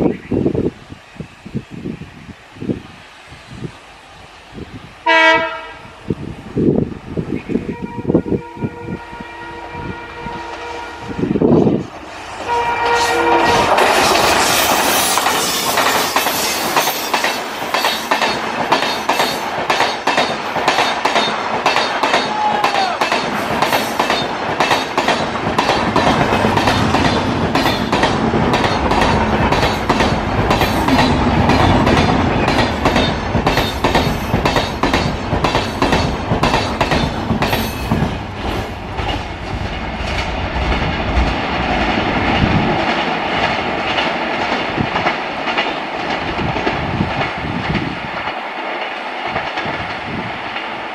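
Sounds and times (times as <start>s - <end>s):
train wheels clattering over rail joints: 12.2s - 50.8s.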